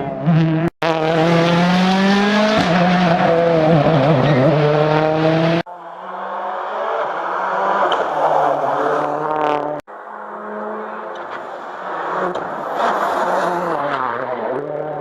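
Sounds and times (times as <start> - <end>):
rally car engines at high revs: 0.0 - 15.0.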